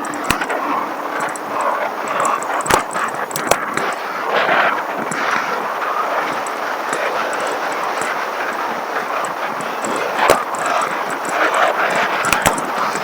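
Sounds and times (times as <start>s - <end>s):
sharp click: 0.0s - 4.0s, 9.2s - 13.0s
road and wind noise from bicycle: 0.0s - 13.0s.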